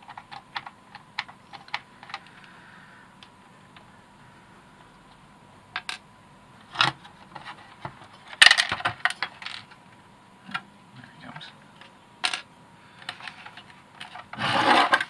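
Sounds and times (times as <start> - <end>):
plastic parts clattering and rattling: 6.7 - 9.8, 12.2 - 15.0.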